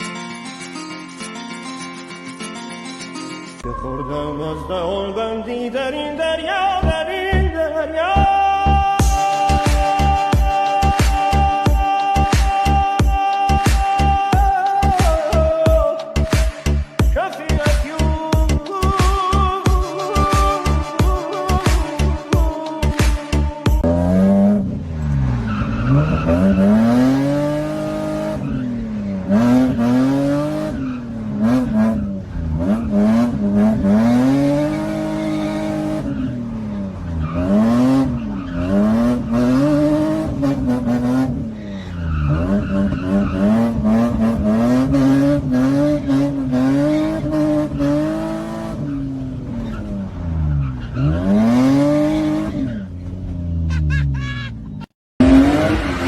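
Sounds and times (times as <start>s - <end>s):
tyres squealing and skidding: 19.3s - 56.0s
car engine revving hard: 23.8s - 53.7s, 55.2s - 56.0s.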